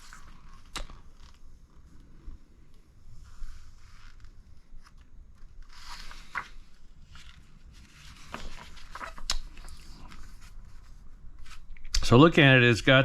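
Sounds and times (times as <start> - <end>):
paper pages rustling and turning: 3.3 - 11.7.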